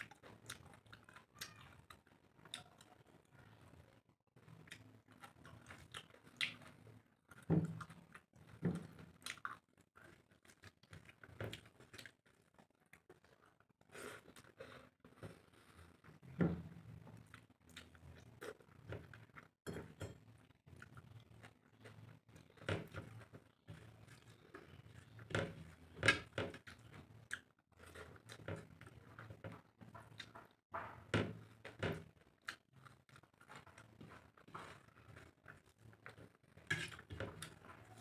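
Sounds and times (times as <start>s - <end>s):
person chewing with mouth smacks: 4.5s - 16.4s, 32.2s - 38.0s.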